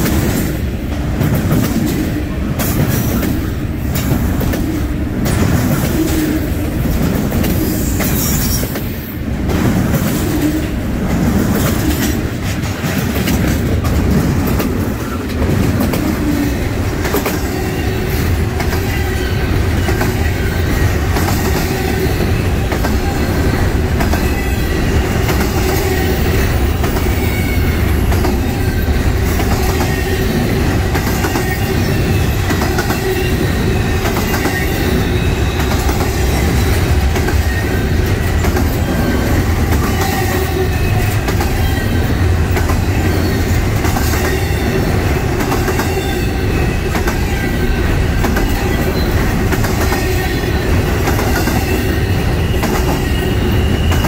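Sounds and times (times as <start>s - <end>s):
train wheels rumbling on rail: 0.0s - 54.0s
faint wavering wheel squeal: 51.4s - 54.0s.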